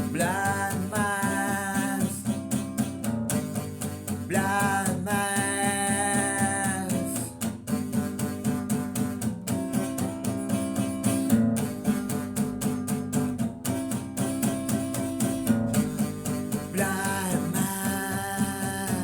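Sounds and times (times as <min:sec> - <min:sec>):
rock song with guitars: 0:00.0 - 0:19.0.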